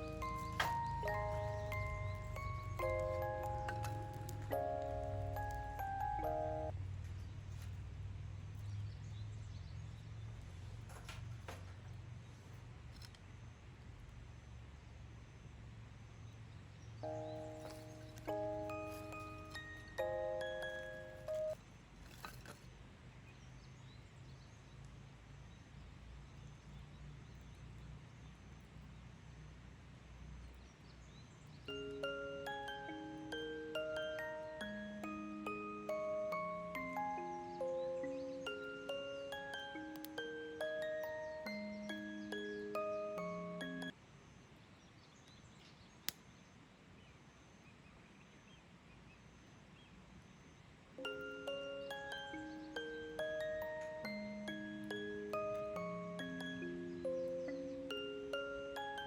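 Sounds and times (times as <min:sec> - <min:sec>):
bell-like background music: 0:00.0 - 0:06.8, 0:17.0 - 0:21.6, 0:31.7 - 0:44.0, 0:51.0 - 0:59.0.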